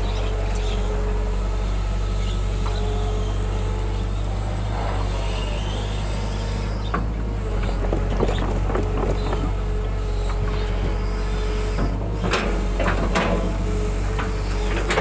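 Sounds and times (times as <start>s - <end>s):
excavator diesel engine running: 0.0s - 15.0s
faint machine knocks and clicks: 6.9s - 11.0s.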